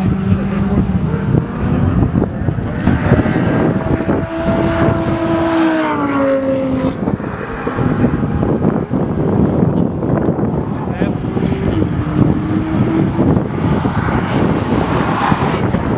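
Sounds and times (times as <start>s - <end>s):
sports car engine running: 0.0s - 15.9s.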